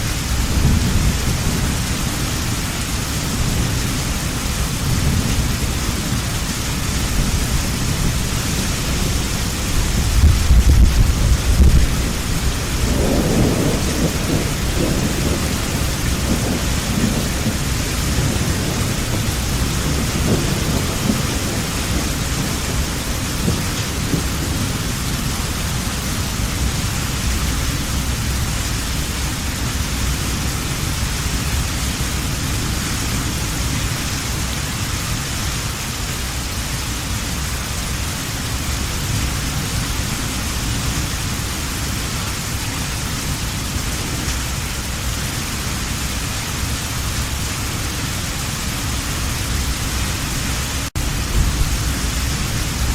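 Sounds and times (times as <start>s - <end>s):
heavy rain falling: 0.0s - 52.9s
rolling thunder: 0.1s - 34.1s, 46.6s - 52.9s.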